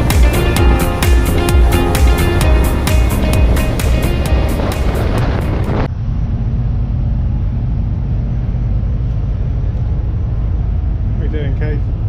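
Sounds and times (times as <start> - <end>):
background music: 0.0 - 5.9
wind on microphone: 0.0 - 11.2.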